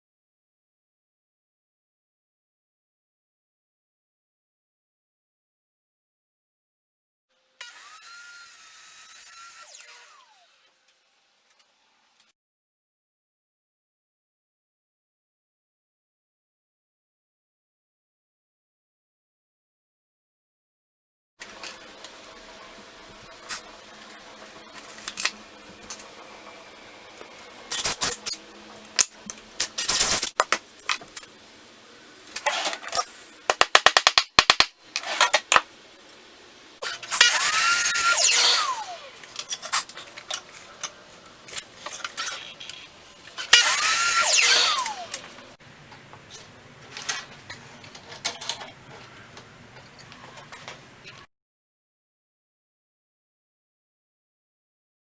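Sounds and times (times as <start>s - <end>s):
power drill running: 7.6s - 10.8s, 37.2s - 39.4s, 43.4s - 45.5s
knocks and clicks of parts: 33.5s - 34.8s.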